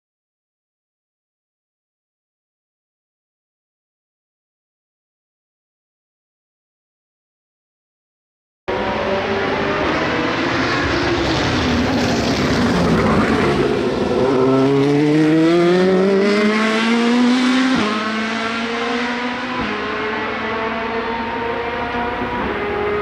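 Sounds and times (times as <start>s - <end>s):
race car engine accelerating: 8.7s - 23.0s.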